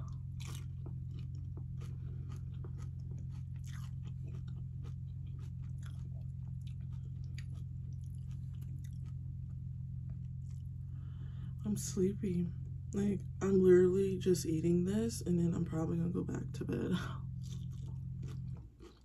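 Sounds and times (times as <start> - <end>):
crunchy chip chewing: 0.0 - 10.8, 17.3 - 19.0
low hum: 0.0 - 19.0.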